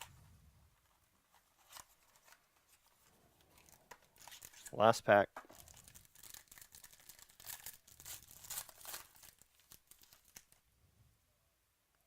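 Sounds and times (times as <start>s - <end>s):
wrapper tearing and crinkling: 3.5s - 4.8s, 5.5s - 10.6s.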